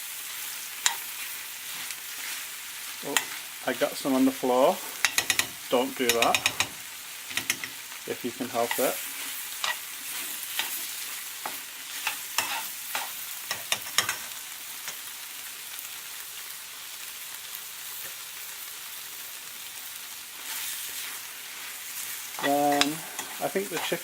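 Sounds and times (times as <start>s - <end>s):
chicken sizzling in a pan: 0.0s - 24.0s
utensil scraping and knocking pan: 4.8s - 7.8s.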